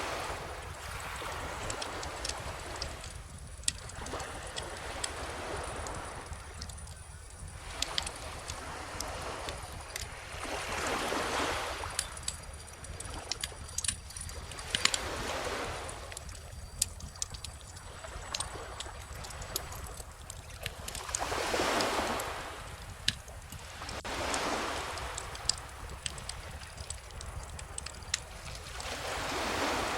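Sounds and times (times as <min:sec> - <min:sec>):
wood fire crackling and popping: 0:16.0 - 0:21.3, 0:25.0 - 0:28.8
small ocean waves washing in: 0:17.2 - 0:29.9.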